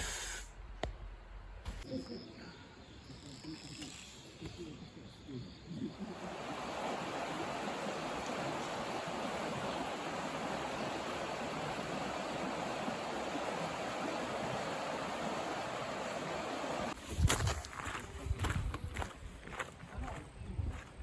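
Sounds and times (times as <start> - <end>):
running water: 6.0 - 17.0.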